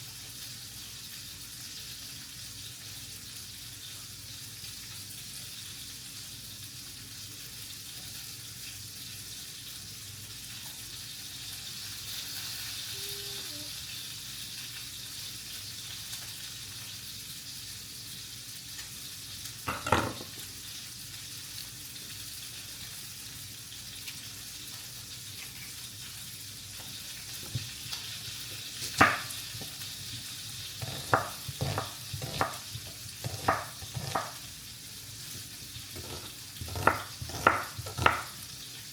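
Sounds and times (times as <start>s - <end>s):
food sizzling in a pan: 0.0s - 38.9s
utensil knocking on a pan: 19.7s - 20.3s, 29.0s - 29.3s, 30.8s - 34.4s, 36.0s - 38.4s.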